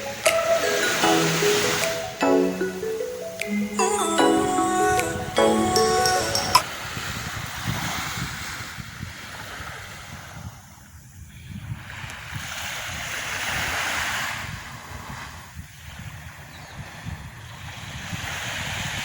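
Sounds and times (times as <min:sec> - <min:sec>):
wind buffeting microphone: 0:06.6 - 0:19.0
surf washing on beach: 0:11.6 - 0:19.0.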